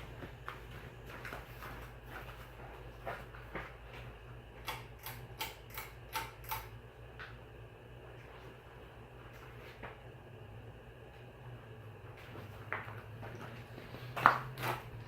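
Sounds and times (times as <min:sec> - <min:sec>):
ceiling fan motor hum: 0:00.0 - 0:15.0
fan ticking: 0:04.4 - 0:07.5.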